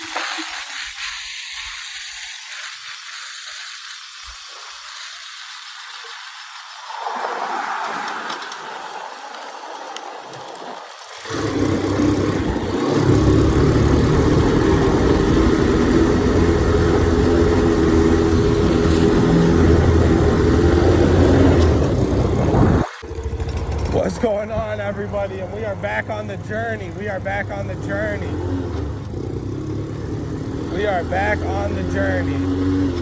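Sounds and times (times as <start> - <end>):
faint hiss: 0.0 - 11.2
motorcycle engine running: 11.1 - 33.0.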